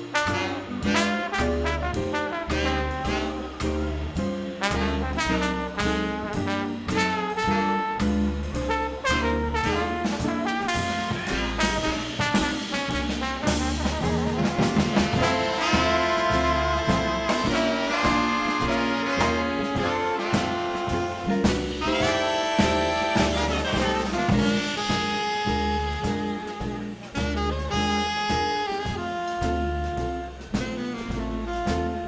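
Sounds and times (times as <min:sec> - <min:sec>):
trumpet: 0:00.0 - 0:04.0, 0:04.6 - 0:32.0
drums: 0:00.0 - 0:32.0
trombone: 0:00.0 - 0:32.0
upright bass: 0:00.0 - 0:32.0
saxophones: 0:14.9 - 0:29.7.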